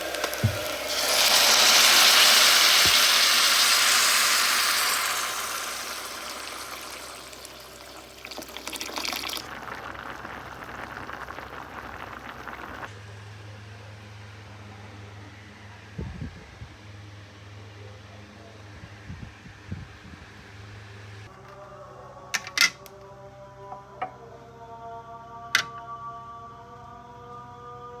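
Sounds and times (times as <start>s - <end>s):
water running from tap: 0.0s - 12.9s.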